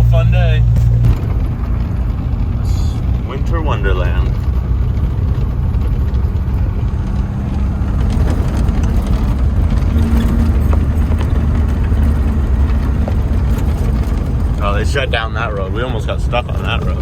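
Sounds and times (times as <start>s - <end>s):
pickup truck engine droning: 0.0s - 17.0s.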